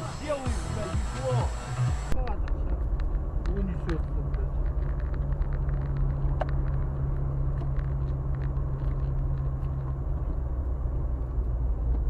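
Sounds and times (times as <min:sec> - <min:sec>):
car engine drone: 0:00.0 - 0:12.0
road noise: 0:00.0 - 0:12.0.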